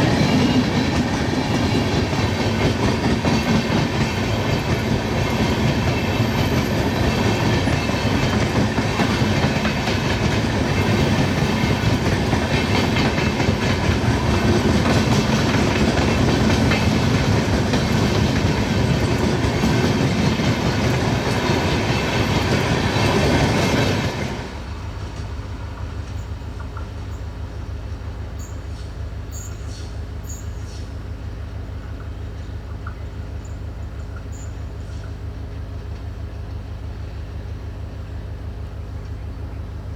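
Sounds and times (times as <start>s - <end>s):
train wheels clattering over rails: 0.0s - 27.1s.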